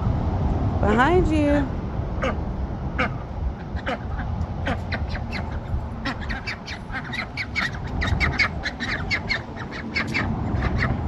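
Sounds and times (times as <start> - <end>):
ducks quacking: 2.2 - 2.4, 3.0 - 11.0.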